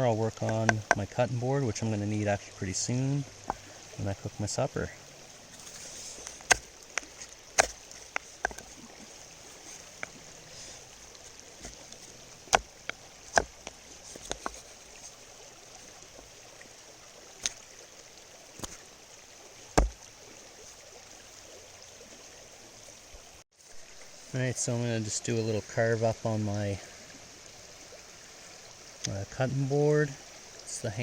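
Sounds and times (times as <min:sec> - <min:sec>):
river flowing: 0:00.0 - 0:31.0
knife carving wood: 0:05.5 - 0:08.8, 0:09.5 - 0:13.6.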